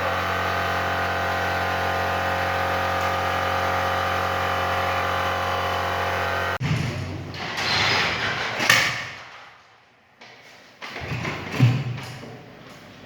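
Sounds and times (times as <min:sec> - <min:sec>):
motorcycle engine running steadily: 0:00.0 - 0:06.6.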